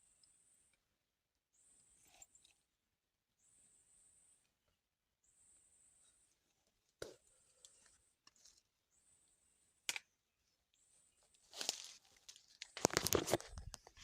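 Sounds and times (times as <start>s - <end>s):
rustling and crunching: 11.3s - 14.0s.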